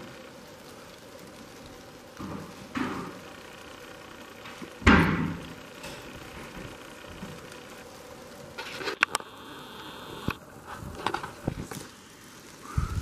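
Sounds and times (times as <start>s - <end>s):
steady rain falling: 0.0s - 13.0s
loud thump: 4.8s - 5.4s.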